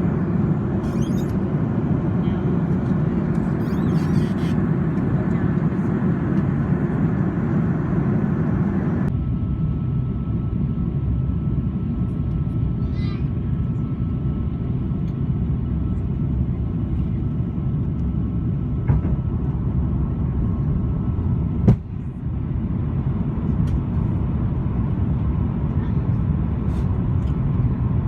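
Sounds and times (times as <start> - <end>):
airliner cabin engine noise: 0.0 - 28.0.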